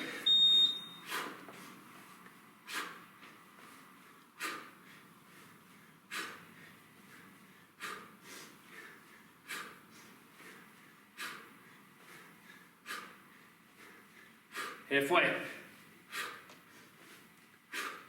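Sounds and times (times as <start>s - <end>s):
man breathing out hard: 4.4s - 14.9s, 16.1s - 18.0s.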